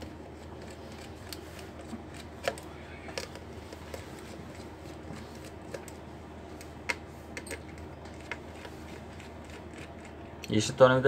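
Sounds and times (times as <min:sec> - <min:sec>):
small tools clicking and tapping: 0:06.6 - 0:10.6.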